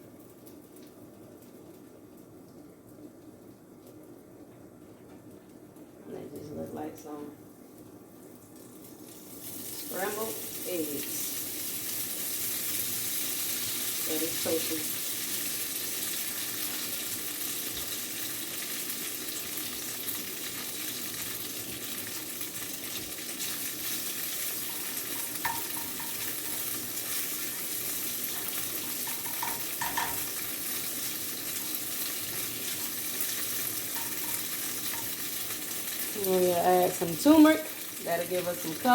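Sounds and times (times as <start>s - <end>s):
tofu sizzling in a frying pan: 8.2s - 38.9s
utensil clinking against pan: 24.6s - 26.6s, 28.4s - 30.3s, 33.9s - 35.2s.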